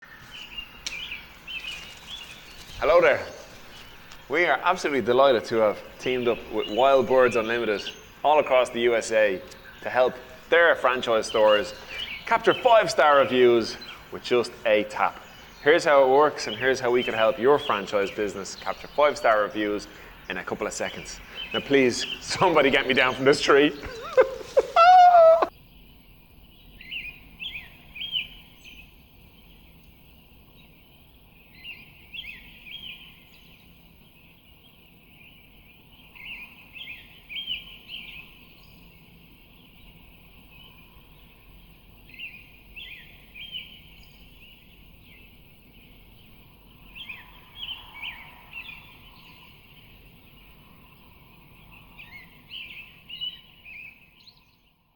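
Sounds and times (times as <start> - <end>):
faint outdoor hiss: 0.0 - 54.9
songbird chirps and trills: 0.0 - 54.9.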